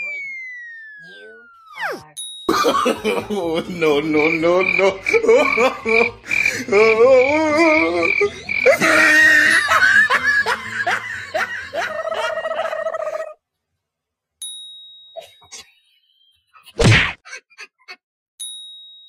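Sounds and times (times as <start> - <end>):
cat yowling: 0.0 - 2.1
high beeps: 0.0 - 2.2.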